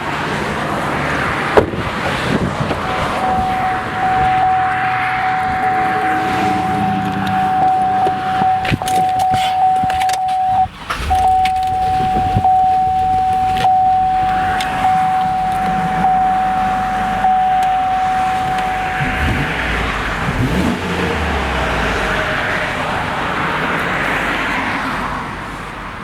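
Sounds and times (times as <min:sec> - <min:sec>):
car engine starting and idling: 0:00.0 - 0:26.0
pulsing electronic warning tone: 0:03.1 - 0:19.5
keys jingling and clicking: 0:07.2 - 0:15.8.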